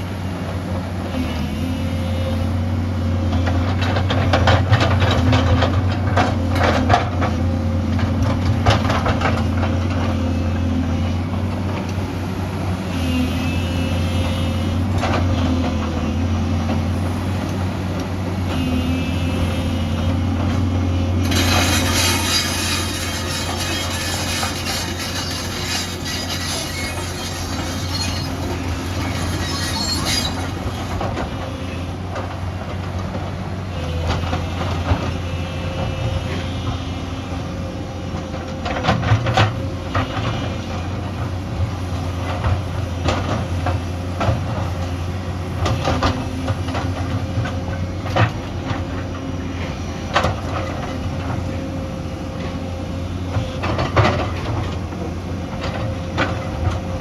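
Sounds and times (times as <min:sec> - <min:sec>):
diesel engine under load: 0:00.0 - 0:57.0.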